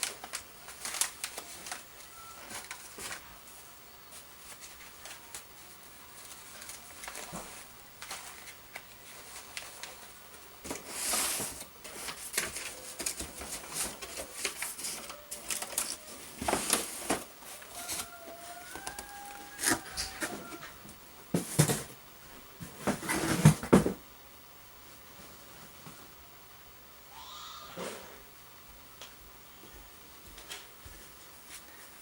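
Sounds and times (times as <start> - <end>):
paper rustling and crinkling: 0.0 - 20.8.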